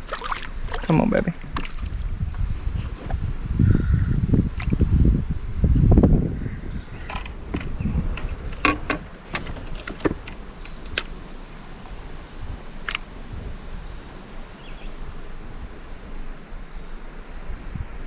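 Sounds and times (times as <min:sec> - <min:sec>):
low wind: 0:00.0 - 0:18.0
handling noise: 0:07.0 - 0:12.0
sharp clicks and knocks: 0:07.1 - 0:11.2.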